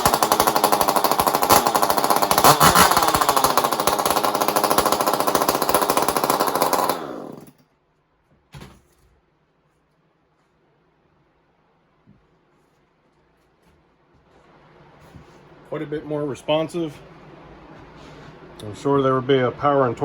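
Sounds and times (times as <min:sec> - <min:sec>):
chainsaw running loud: 0:00.0 - 0:07.6.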